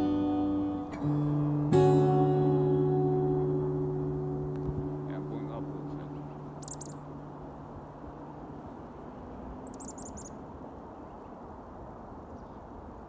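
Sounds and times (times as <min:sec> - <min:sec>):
low outdoor rumble: 0:00.0 - 0:10.0
small birds chirping: 0:03.3 - 0:11.4.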